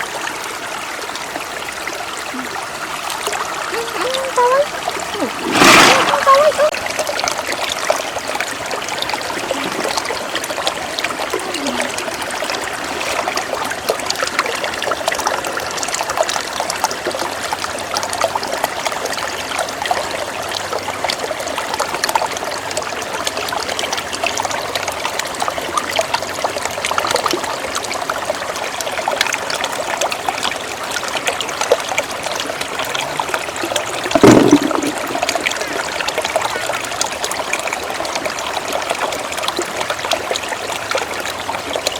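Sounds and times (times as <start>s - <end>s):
water splash: 3.8s - 7.1s, 34.1s - 35.9s
shallow water trickling: 25.6s - 41.9s.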